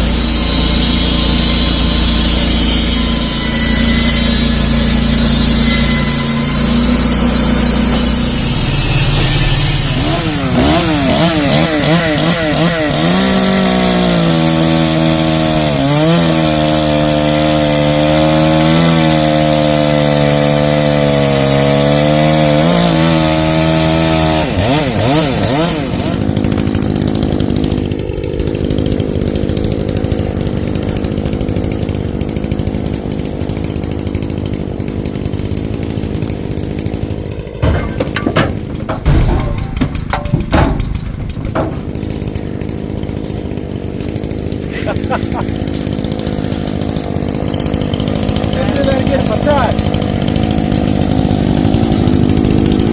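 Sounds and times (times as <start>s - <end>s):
chainsaw revving and cutting: 0.0s - 39.0s, 41.2s - 52.9s.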